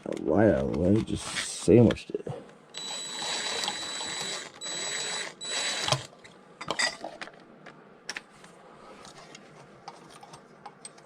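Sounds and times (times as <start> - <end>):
power wrench spinning bolt: 2.8 - 6.1.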